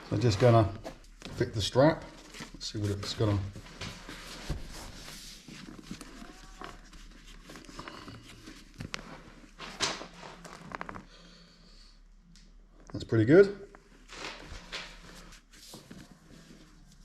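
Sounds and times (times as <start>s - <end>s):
leather strap rustling and scraping: 2.0s - 11.1s, 13.9s - 17.0s.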